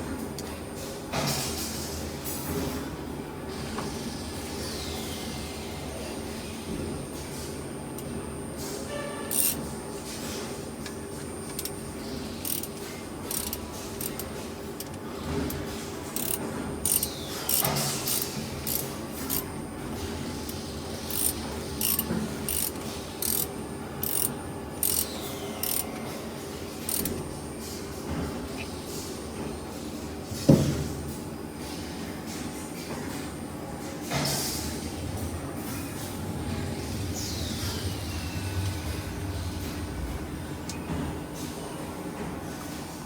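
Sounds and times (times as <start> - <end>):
machine hum: 6.9 - 28.6
sharp metallic clicks: 9.3 - 9.6, 12.4 - 15.6, 16.2 - 19.5, 20.5 - 25.8, 26.9 - 27.2.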